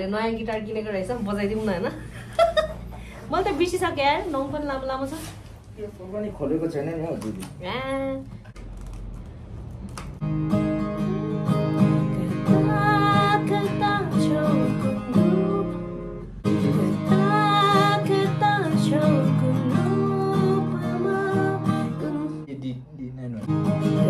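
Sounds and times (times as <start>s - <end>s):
acoustic guitar strummed: 10.2s - 22.4s, 23.4s - 24.0s
person singing: 10.9s - 22.5s.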